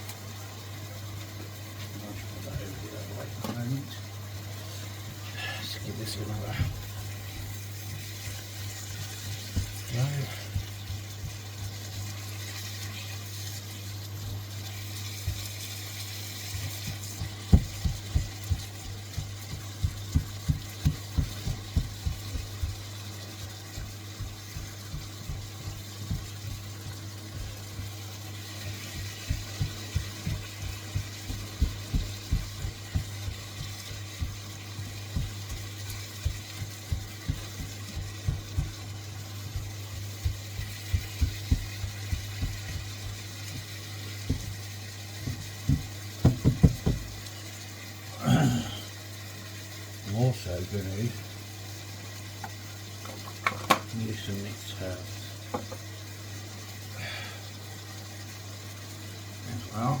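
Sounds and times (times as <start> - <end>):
steady low hum: 2.1 - 12.3, 14.0 - 47.3
dough mixing thuds: 6.0 - 47.3.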